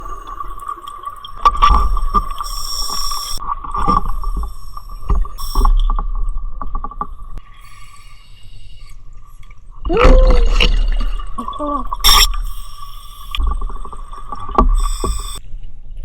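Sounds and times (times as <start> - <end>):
hissing regulator inhales: 2.4 - 3.4, 7.5 - 9.1, 14.8 - 15.4
exhaled bubbles rumbling: 9.8 - 15.4.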